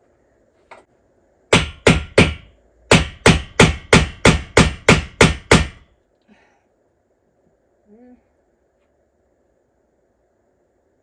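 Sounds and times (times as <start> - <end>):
hammer tapping on wall: 1.5 - 5.8.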